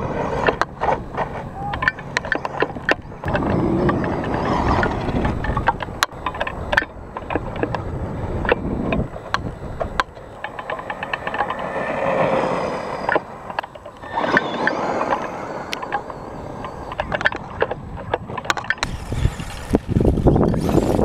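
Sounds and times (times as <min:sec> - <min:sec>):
faint electric motor whine: 0:00.0 - 0:21.0
sharp clicks and knocks: 0:00.4 - 0:11.9, 0:13.0 - 0:18.9
tyres hissing over rough ground: 0:18.8 - 0:21.0.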